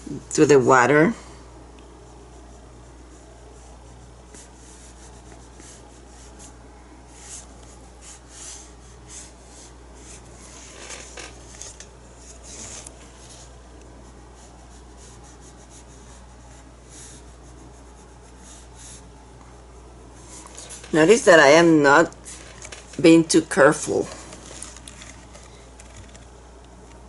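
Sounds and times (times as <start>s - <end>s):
faint low hum: 0.0s - 27.0s
paintbrush scratchy strokes: 2.0s - 19.1s, 19.7s - 21.6s.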